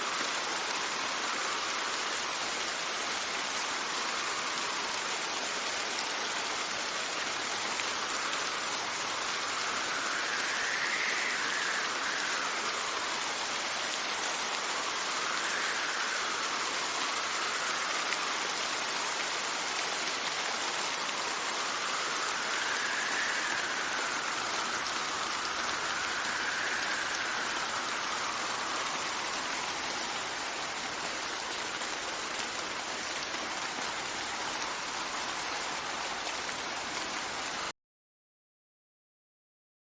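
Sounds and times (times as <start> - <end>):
steady rain: 0.0 - 37.7
wind blowing in gusts: 6.6 - 37.7
faint whistle: 7.9 - 18.3, 21.2 - 30.6.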